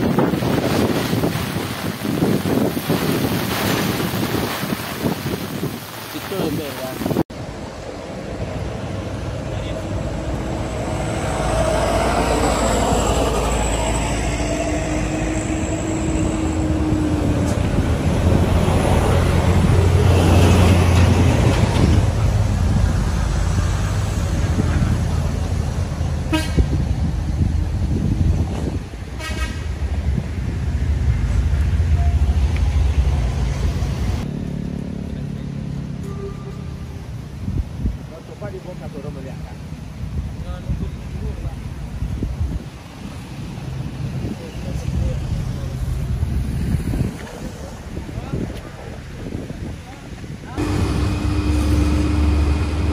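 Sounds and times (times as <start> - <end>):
vehicle engine rumbling: 0.0 - 52.9
car horn: 26.3 - 26.7, 29.2 - 29.6.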